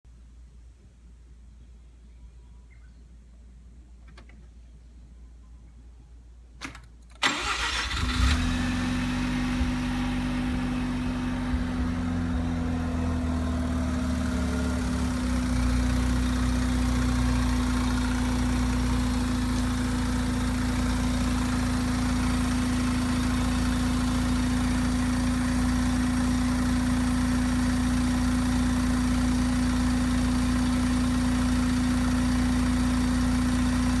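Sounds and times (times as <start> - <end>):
rotary engine starting and idling: 7.1 - 27.0
constant hum: 7.9 - 27.0.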